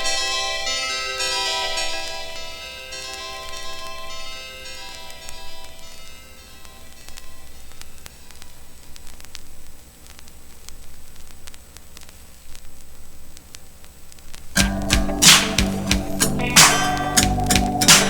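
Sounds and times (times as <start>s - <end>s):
vinyl surface hiss: 7.6s - 18.0s
vinyl clicks and pops: 14.2s - 18.0s
music from record: 14.6s - 18.0s.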